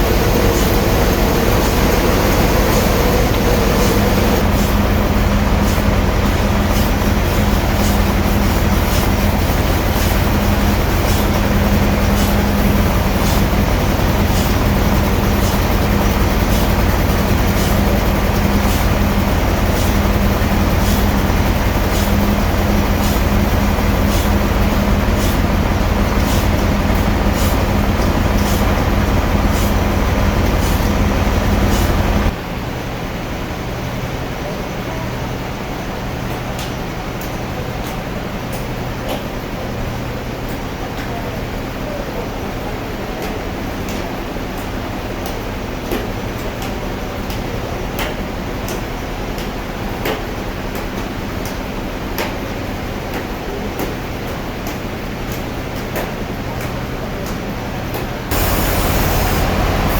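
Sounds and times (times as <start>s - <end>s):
sawmill machinery humming: 0.0s - 32.3s, 58.2s - 59.9s.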